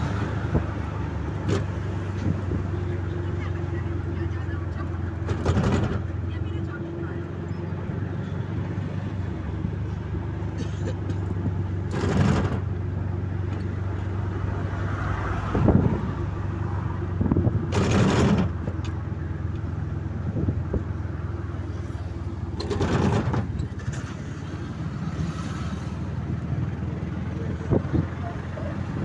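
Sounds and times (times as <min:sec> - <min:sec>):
road traffic noise: 0:00.0 - 0:29.0
vehicle engine running: 0:00.0 - 0:29.0.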